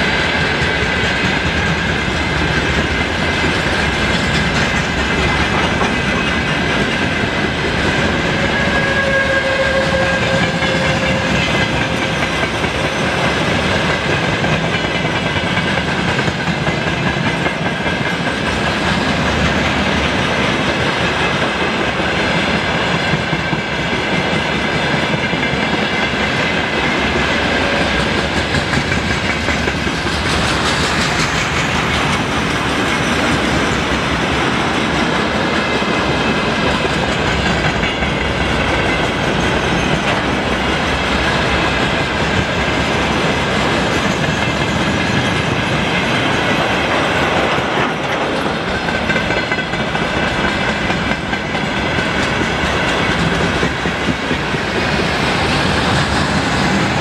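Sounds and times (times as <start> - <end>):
freight train wheels clattering: 0.0 - 57.0.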